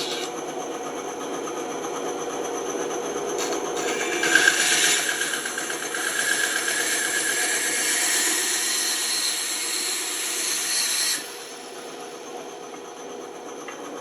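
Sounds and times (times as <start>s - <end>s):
electric saw cutting wood: 0.0s - 0.4s, 3.4s - 11.9s.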